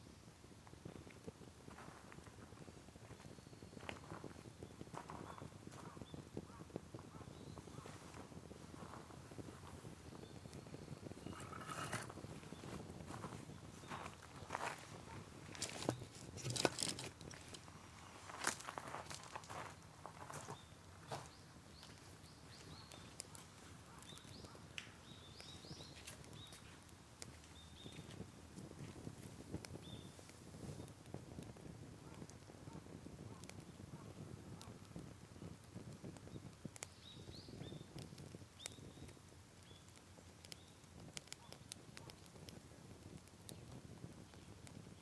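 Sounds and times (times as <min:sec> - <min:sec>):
bonfire crackling and popping: 0:00.0 - 0:45.0
faint bird chirps: 0:02.7 - 0:08.2, 0:08.8 - 0:12.8, 0:20.3 - 0:26.8, 0:29.7 - 0:30.2, 0:36.2 - 0:42.2
bird chirping: 0:20.2 - 0:26.8, 0:27.4 - 0:28.2.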